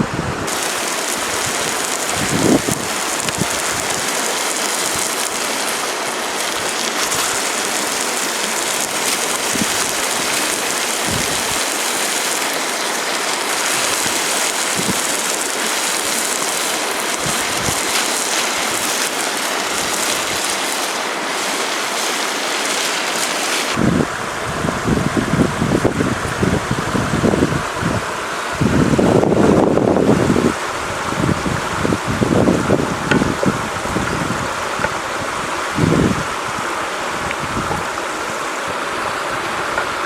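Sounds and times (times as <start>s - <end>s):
rushing water hiss: 0.0s - 40.0s.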